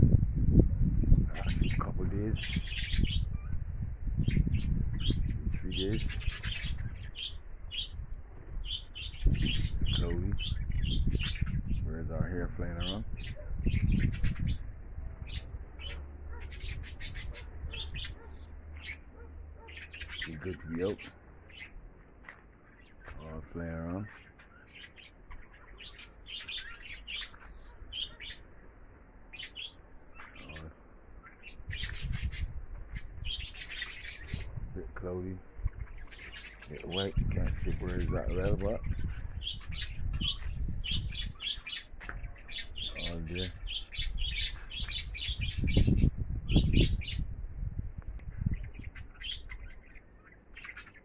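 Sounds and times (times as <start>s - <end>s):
rush of noise with low rumble: 0.0s - 18.8s, 43.5s - 49.2s
small birds chirping: 1.0s - 51.0s.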